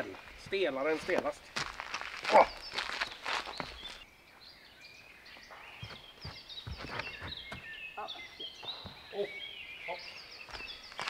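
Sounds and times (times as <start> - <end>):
soft footsteps: 0.0 - 4.0
small birds chirping: 0.0 - 11.0.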